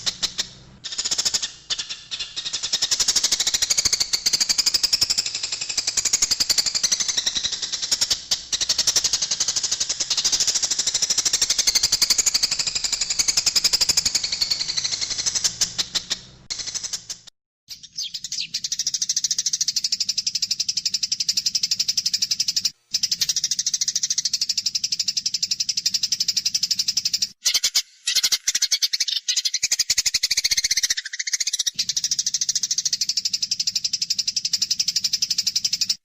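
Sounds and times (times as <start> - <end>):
sparrows chattering: 17.7 - 36.0.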